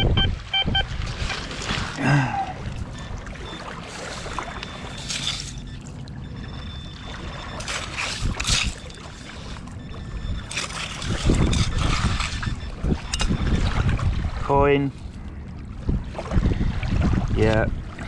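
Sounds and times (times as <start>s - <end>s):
wind buffeting microphone: 9.6s - 18.0s.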